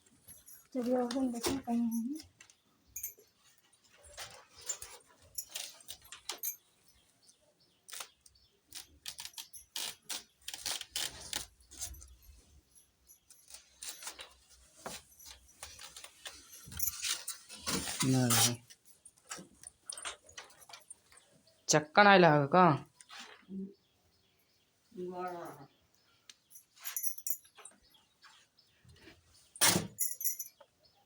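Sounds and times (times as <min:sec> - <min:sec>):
keys jangling and clicking: 0:00.2 - 0:03.4, 0:04.0 - 0:07.0, 0:07.9 - 0:21.3, 0:26.4 - 0:28.0, 0:29.6 - 0:30.7.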